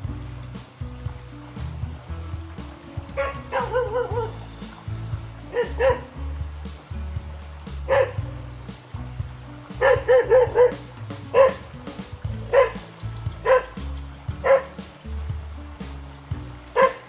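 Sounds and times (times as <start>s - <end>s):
background music with low beat: 0.0s - 17.0s
dog barking: 3.2s - 4.3s, 5.5s - 6.1s, 7.9s - 8.2s, 9.8s - 11.7s, 12.5s - 13.8s, 14.4s - 14.8s, 16.8s - 17.0s.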